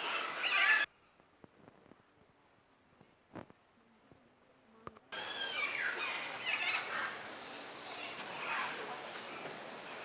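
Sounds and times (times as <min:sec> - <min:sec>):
birds calling: 0:05.2 - 0:10.0.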